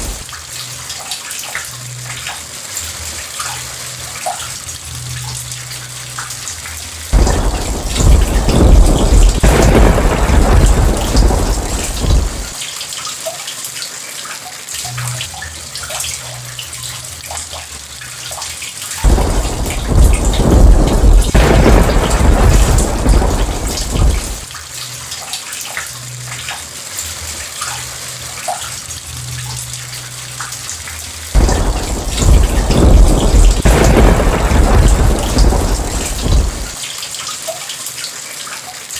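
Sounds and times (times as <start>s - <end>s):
thunder rumbling: 0.0s - 0.3s, 7.1s - 12.6s, 19.0s - 24.5s, 31.4s - 36.8s
heavy rain: 0.0s - 38.9s.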